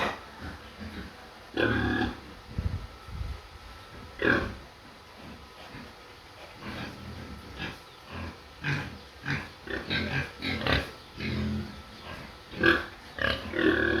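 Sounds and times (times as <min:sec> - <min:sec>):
pig grunting and squealing: 0:00.0 - 0:02.4, 0:04.2 - 0:14.0.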